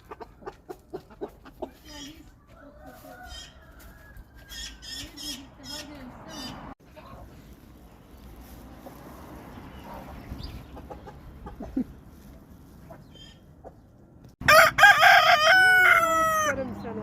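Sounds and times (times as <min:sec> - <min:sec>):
rooster crowing: 0:02.5 - 0:04.5, 0:14.4 - 0:16.6.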